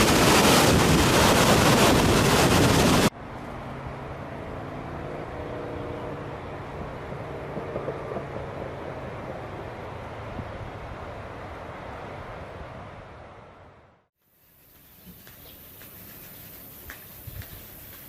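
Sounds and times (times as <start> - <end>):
waterfall rushing: 0.0 - 3.1.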